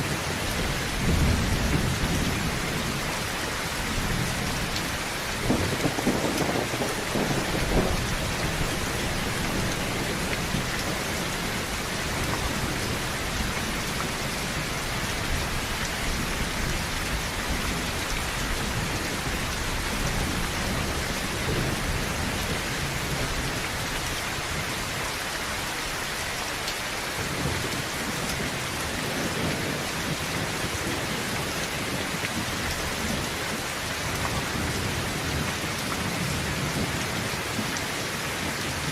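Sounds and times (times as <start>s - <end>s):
heavy rain on a tin roof: 0.0s - 38.9s
low roll of thunder: 0.1s - 23.8s.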